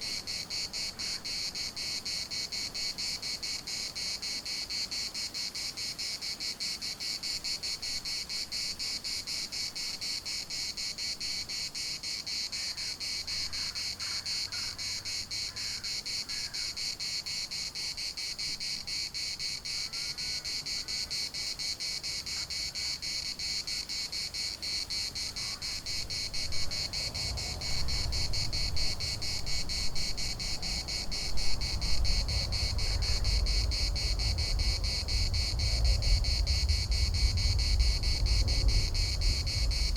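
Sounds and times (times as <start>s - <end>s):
cicadas buzzing: 0.0s - 39.9s
low rumble: 31.1s - 39.9s.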